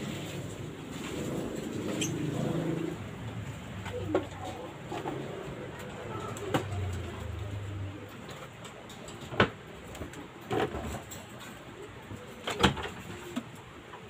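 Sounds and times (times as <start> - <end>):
birds calling: 1.6 - 4.2.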